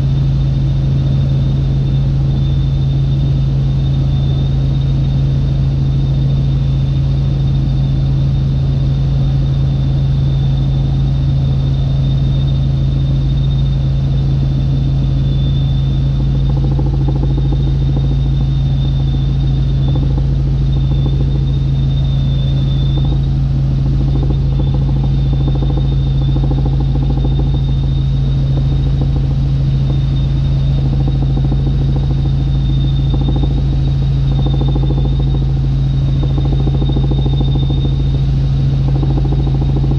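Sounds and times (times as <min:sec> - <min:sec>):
helicopter drone inside cabin: 0:00.0 - 0:39.9
thin high whine: 0:14.5 - 0:39.9.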